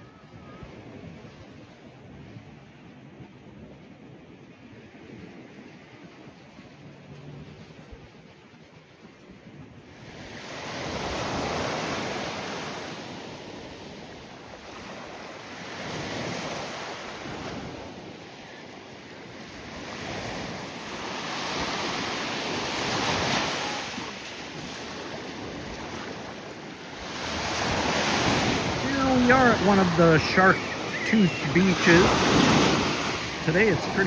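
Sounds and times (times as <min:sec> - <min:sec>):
wind buffeting microphone: 0:00.0 - 0:34.0
waves breaking on beach: 0:04.1 - 0:34.0.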